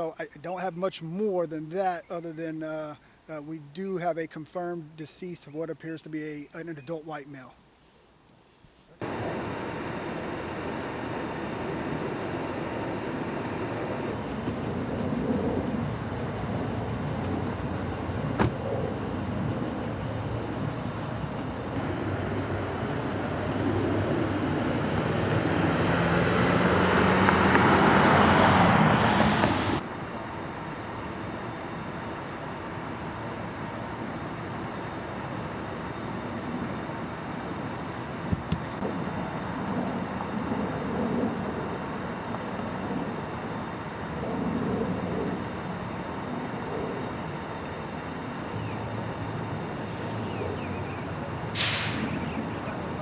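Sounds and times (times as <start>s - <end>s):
vehicle passing: 9.0s - 29.8s, 48.8s - 53.0s
road traffic: 9.0s - 53.0s
burst of hiss: 51.6s - 52.2s.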